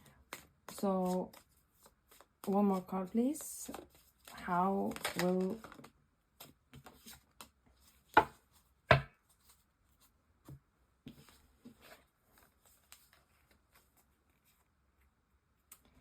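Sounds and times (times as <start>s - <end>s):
knocks on a table: 8.9s - 9.1s.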